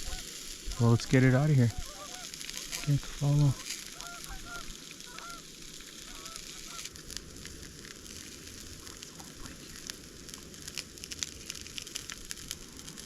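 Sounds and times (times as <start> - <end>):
distant geese honking: 0.0 - 6.9
steady hiss: 0.0 - 13.0.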